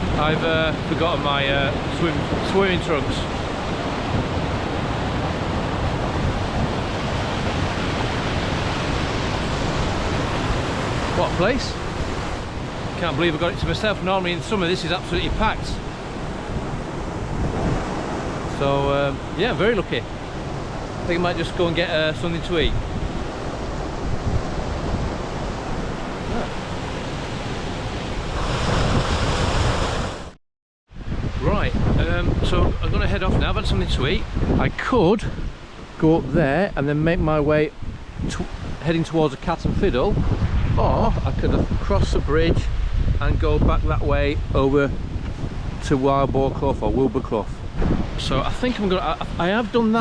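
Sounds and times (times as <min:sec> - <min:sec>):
waterfall rushing into pool: 0:00.0 - 0:16.1
wind buffeting microphone: 0:00.0 - 0:30.3, 0:30.9 - 0:50.0
waterfall and stream rushing: 0:00.0 - 0:30.4, 0:31.0 - 0:50.0.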